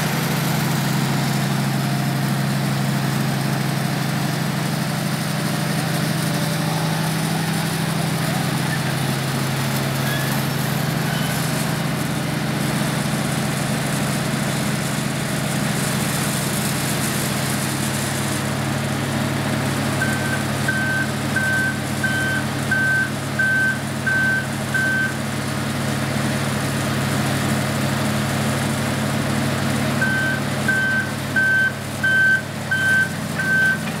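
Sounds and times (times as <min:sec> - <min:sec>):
diesel engine running: 0:00.0 - 0:34.0
reversing alarm beeping: 0:10.0 - 0:11.5, 0:20.0 - 0:25.2, 0:30.0 - 0:33.9.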